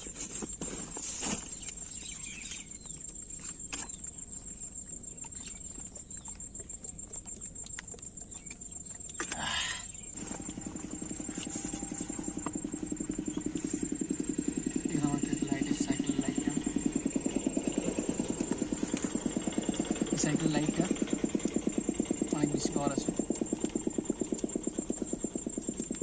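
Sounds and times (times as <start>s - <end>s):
short rustle: 0.0s - 2.1s
motor engine throbbing: 8.4s - 26.0s
thin high whine: 10.1s - 21.5s.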